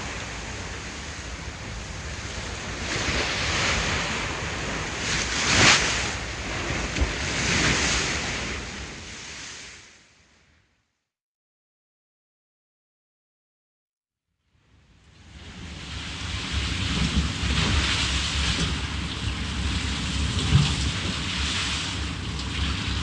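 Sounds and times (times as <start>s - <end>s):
ocean waves breaking on shore: 0.0s - 10.4s, 15.1s - 23.0s.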